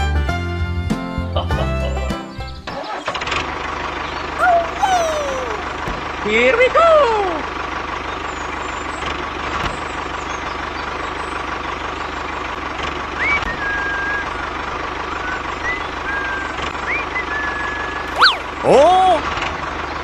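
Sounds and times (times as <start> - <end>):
high whistling tones: 15.2 - 18.5.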